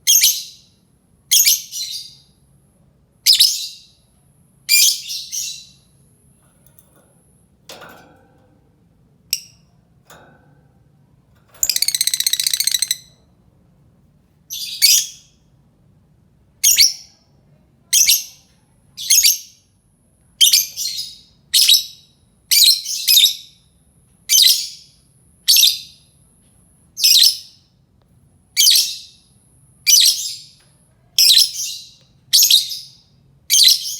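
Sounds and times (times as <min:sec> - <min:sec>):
lovebird chirping: 0:04.7 - 0:05.9, 0:11.6 - 0:13.1
rattling bird trill: 0:11.4 - 0:13.2.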